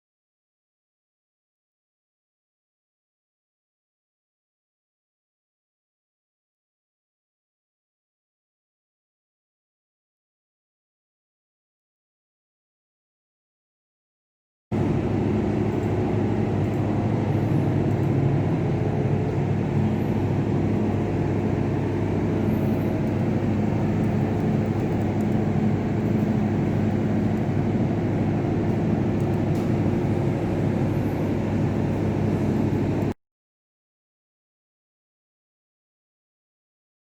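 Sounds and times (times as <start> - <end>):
diesel engine running steadily: 14.8 - 33.2.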